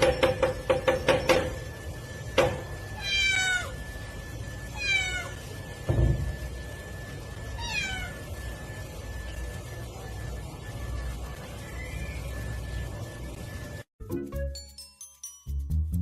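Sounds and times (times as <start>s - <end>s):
faint steady high tone: 0.0s - 13.9s
cat meowing: 3.0s - 3.8s, 4.8s - 5.5s, 7.6s - 8.2s.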